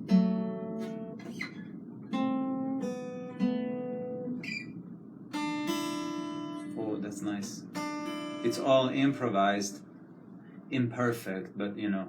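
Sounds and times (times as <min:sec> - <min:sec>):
acoustic guitar strummed chords: 0:00.0 - 0:09.9.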